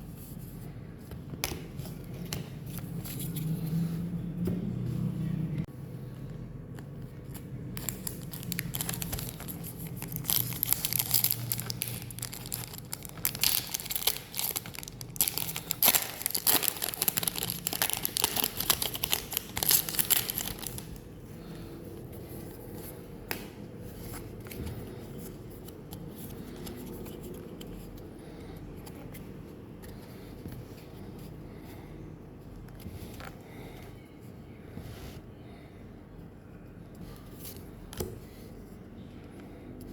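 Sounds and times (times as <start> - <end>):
foil wrapper tearing and crinkling: 7.8 - 21.0.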